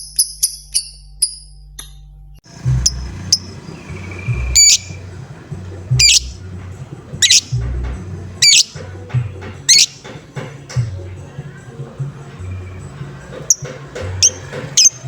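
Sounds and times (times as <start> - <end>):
low background rumble: 2.5 - 9.8
bird chirping and squawking: 2.5 - 10.4, 12.3 - 15.0.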